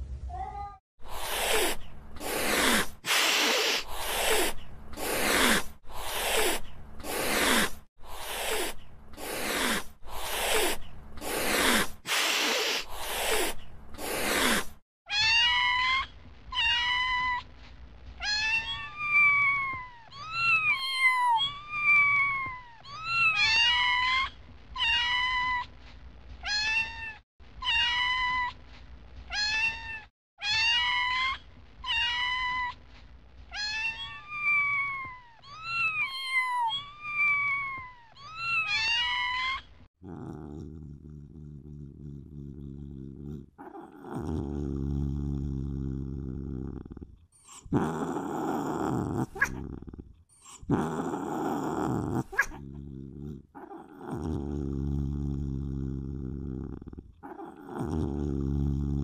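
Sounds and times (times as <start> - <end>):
cat meowing: 0.3 - 0.8.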